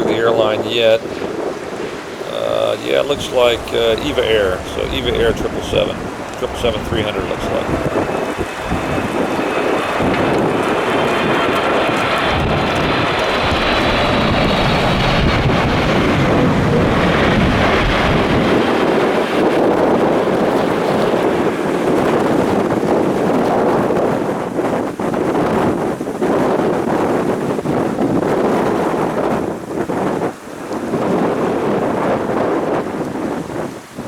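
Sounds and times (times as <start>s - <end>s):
jet engine rumble: 0.0s - 34.0s
wind buffeting microphone: 0.0s - 34.0s
faint high whine: 2.0s - 12.2s.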